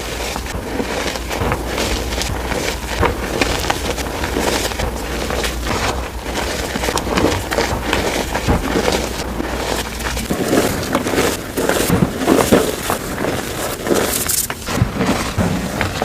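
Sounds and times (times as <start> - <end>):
chalk being crushed: 0.0 - 16.0.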